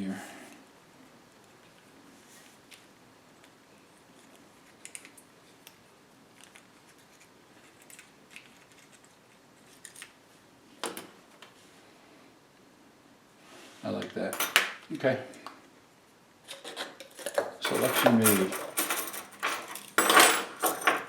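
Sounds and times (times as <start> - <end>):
small metal blades clinking: 17.7 - 21.0.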